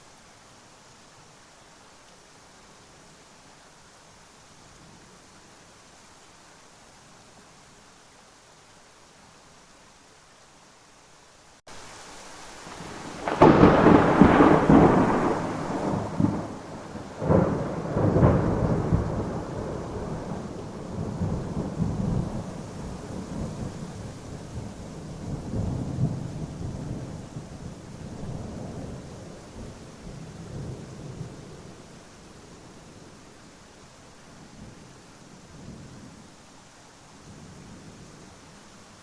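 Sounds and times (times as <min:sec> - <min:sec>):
steady rain: 0:00.0 - 0:39.0
thunder rumbling: 0:12.7 - 0:31.8.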